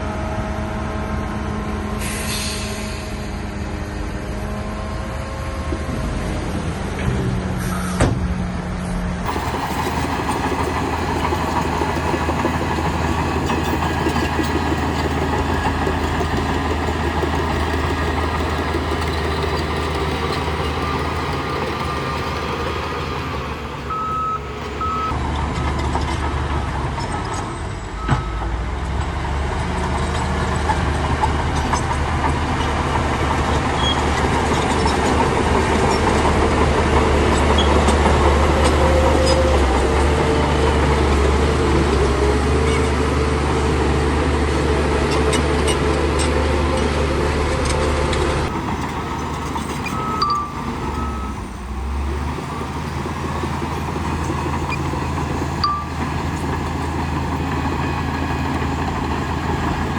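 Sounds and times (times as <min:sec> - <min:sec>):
diesel engine running: 0:00.0 - 0:27.0, 0:29.3 - 0:59.9
reversing alarm beeps: 0:20.7 - 0:25.2, 0:48.7 - 0:52.9, 0:55.6 - 0:56.0.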